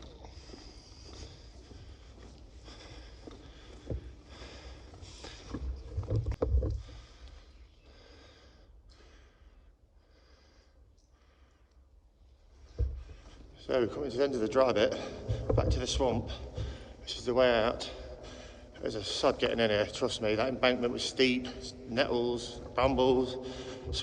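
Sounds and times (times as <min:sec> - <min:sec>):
footsteps crunching on trackbed: 0:00.0 - 0:07.1.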